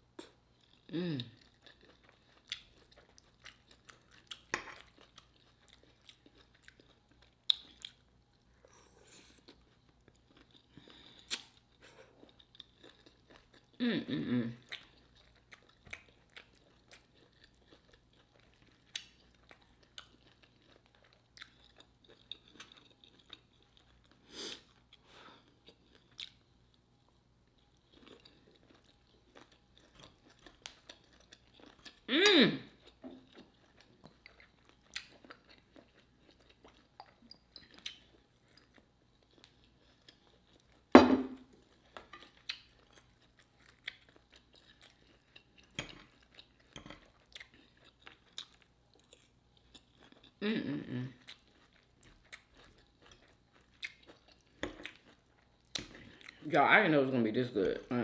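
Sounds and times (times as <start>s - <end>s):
chewing mouth sounds: 32.7s - 40.8s, 51.2s - 56.5s.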